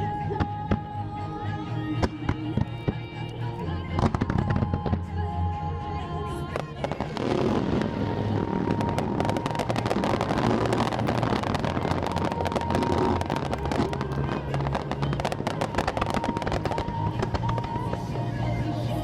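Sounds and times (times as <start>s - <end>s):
music playing: 0.0s - 19.0s
fireworks crackling: 6.5s - 19.0s.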